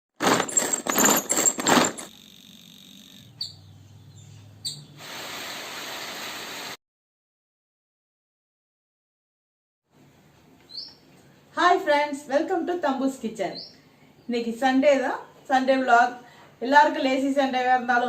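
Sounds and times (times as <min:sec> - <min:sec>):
steady hiss: 0:05.0 - 0:06.8.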